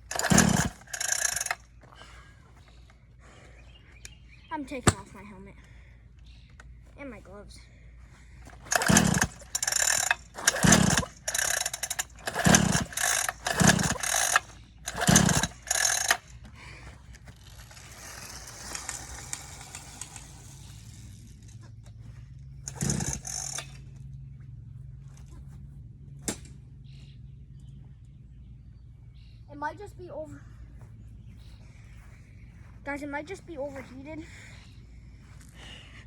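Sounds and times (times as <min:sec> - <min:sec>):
dirt bike engine turning over: 0:00.0 - 0:02.3, 0:08.4 - 0:24.2.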